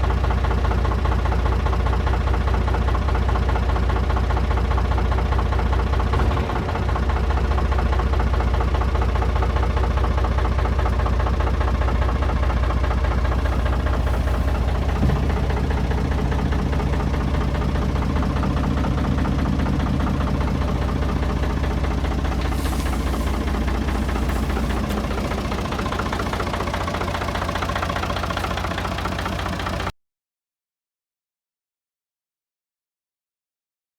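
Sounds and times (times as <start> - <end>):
truck diesel engine running: 0.0 - 29.9.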